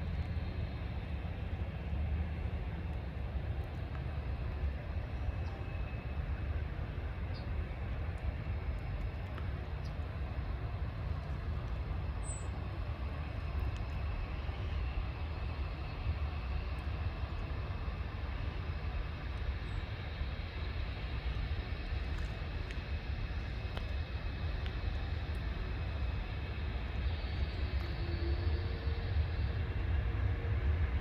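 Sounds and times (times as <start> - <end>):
airliner low rumble: 0.0 - 31.0.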